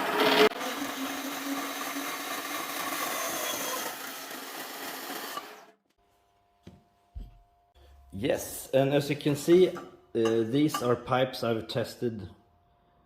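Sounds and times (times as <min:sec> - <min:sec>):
band saw motor hum: 0:00.0 - 0:05.8.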